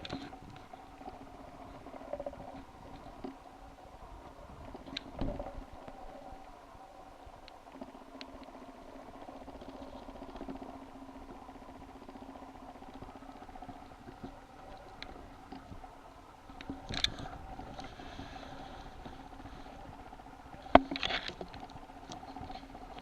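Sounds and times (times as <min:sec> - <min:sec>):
steady low hum: 0:00.0 - 0:23.0
small clicks: 0:04.7 - 0:06.0, 0:16.5 - 0:19.8, 0:20.6 - 0:23.0.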